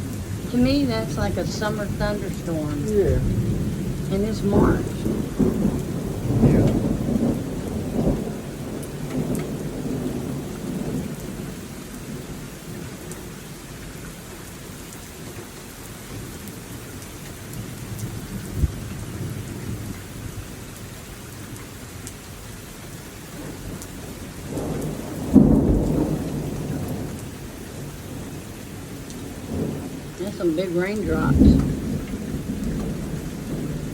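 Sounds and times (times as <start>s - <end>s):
rolling thunder: 0.0s - 13.4s, 17.6s - 20.4s, 23.3s - 33.9s
heavy rain: 0.0s - 33.9s
thunder crack: 0.4s - 11.5s, 24.5s - 27.2s, 29.2s - 33.9s.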